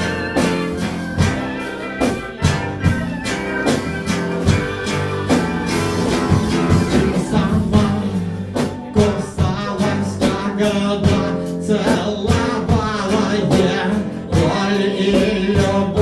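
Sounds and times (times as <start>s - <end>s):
steady beat of hits: 0.0s - 11.5s
guitar: 0.0s - 16.0s
live band playing: 0.0s - 16.0s.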